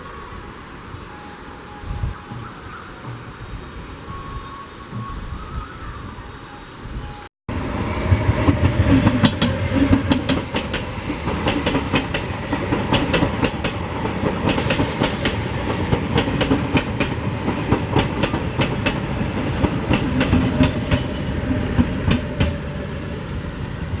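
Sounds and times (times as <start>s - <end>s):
quieter train sound: 0.0s - 24.0s
train wheels clattering: 8.0s - 22.6s.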